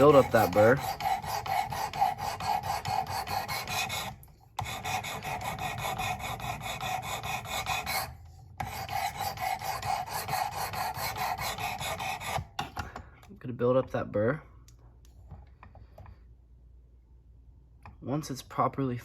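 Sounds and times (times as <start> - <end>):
abrasive rod rasping on knife: 0.0 - 12.6.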